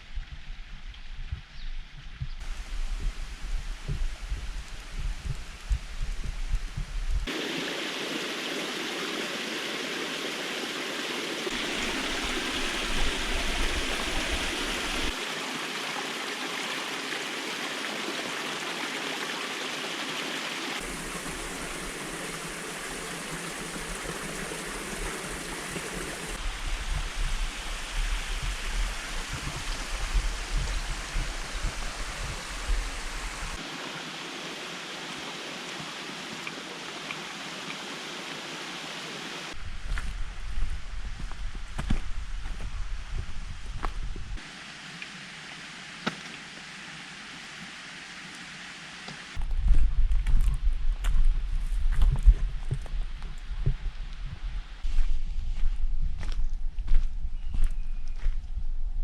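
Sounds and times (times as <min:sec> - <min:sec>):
creek water rushing and gurgling: 0:02.4 - 0:40.8, 0:44.4 - 0:49.4.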